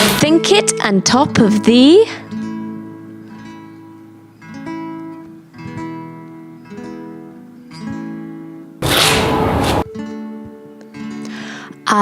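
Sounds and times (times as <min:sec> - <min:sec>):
acoustic guitar strumming chords: 0:08.8 - 0:10.5.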